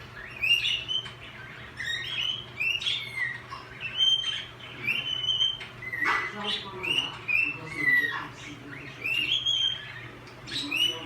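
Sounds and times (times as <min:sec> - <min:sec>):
cockatiel whistling: 0:00.2 - 0:06.2.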